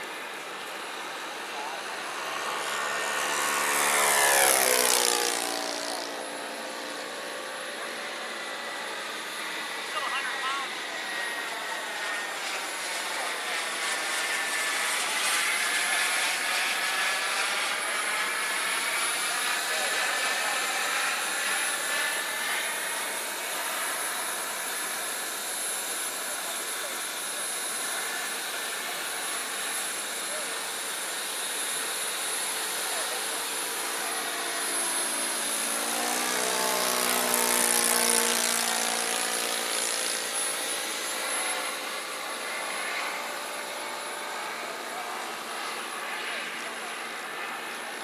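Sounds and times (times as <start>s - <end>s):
jet turbine whine: 0.0s - 48.0s.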